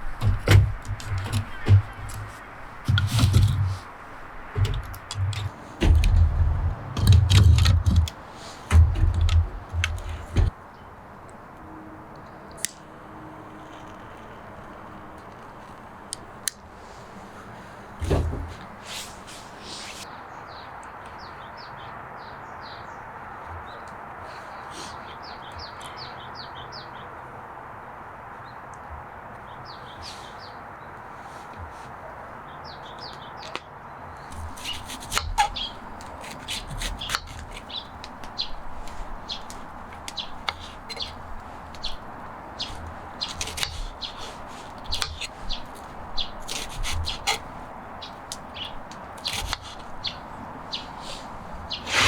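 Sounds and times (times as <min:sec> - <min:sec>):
sharp clicks and knocks: 0:00.0 - 0:10.5
small birds chirping: 0:00.0 - 0:11.0, 0:14.5 - 0:27.3, 0:29.4 - 0:52.0.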